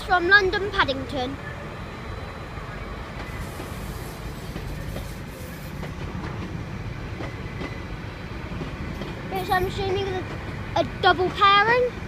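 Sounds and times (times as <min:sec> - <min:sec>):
train low rumble: 0:00.0 - 0:12.0.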